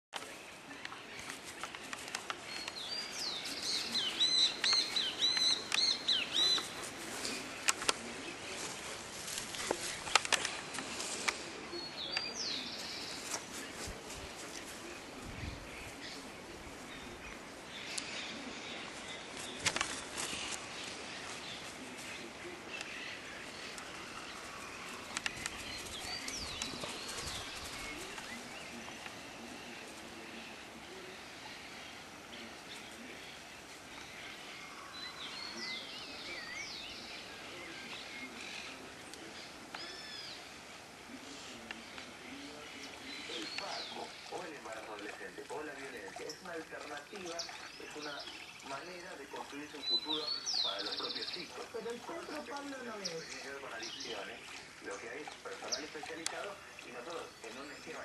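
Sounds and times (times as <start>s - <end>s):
bird chirping: 0.2s - 9.0s, 41.3s - 58.0s
birds calling: 0.2s - 58.0s.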